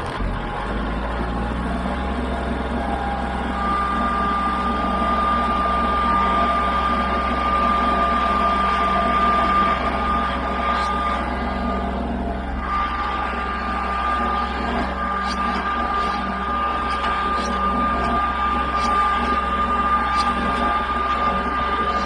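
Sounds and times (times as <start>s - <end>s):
small engine running: 0.0s - 22.0s
steady high whine: 0.0s - 22.0s.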